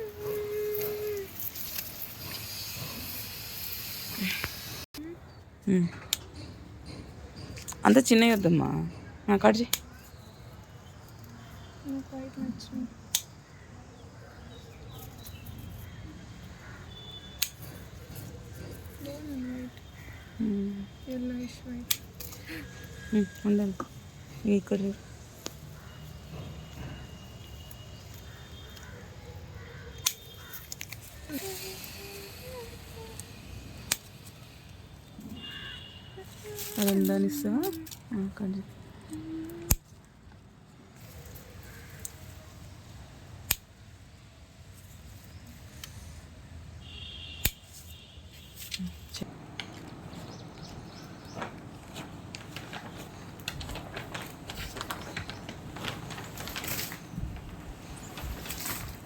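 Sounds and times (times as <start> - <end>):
flower stems being cut: 0.0 - 3.1, 30.0 - 34.6, 36.2 - 38.4, 39.1 - 40.0, 47.4 - 47.7.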